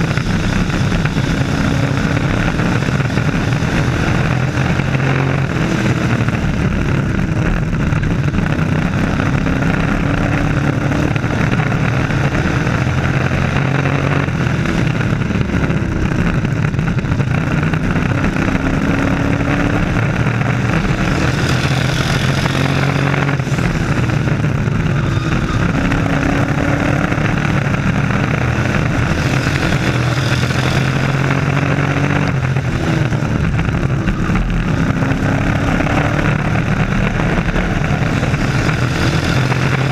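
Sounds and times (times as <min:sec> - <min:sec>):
racing truck engines passing: 0:18.2 - 0:39.9.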